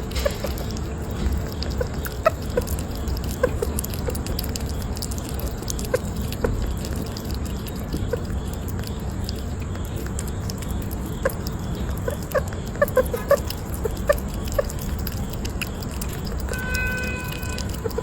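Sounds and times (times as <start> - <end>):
light pattering and clicks: 0.0 - 18.0
low background rumble: 0.0 - 18.0
small pet chirping and squeaking: 0.0 - 18.0
high-pitched squeak: 16.5 - 18.0.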